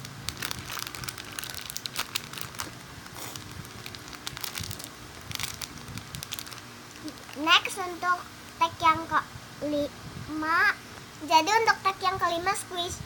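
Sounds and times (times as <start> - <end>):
foam toy crinkling in plastic bag: 0.0 - 7.8.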